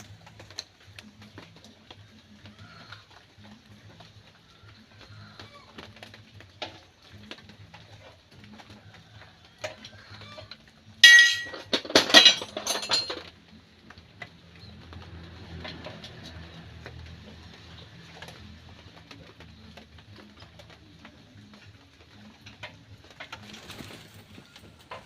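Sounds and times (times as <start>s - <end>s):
metal ringing tone: 11.0s - 11.7s
metal clinking and clattering: 11.0s - 13.4s.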